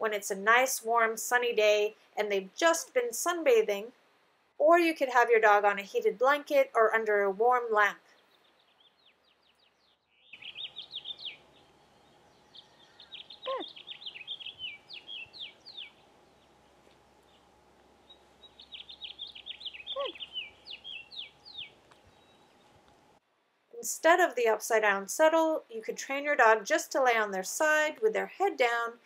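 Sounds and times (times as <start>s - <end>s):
songbird chirping: 4.6s - 23.2s.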